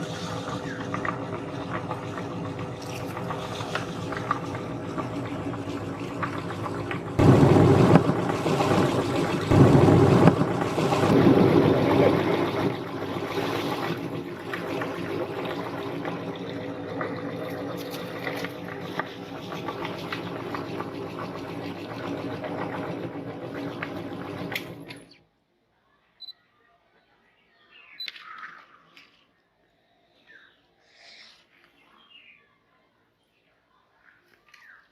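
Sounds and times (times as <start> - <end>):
electric meat grinder motor: 0.0 - 25.0.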